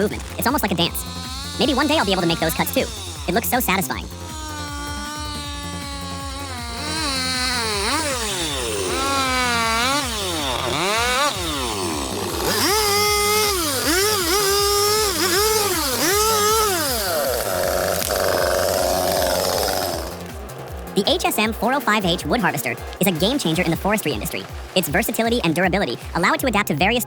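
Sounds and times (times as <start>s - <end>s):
chainsaw revving: 0.0s - 27.0s.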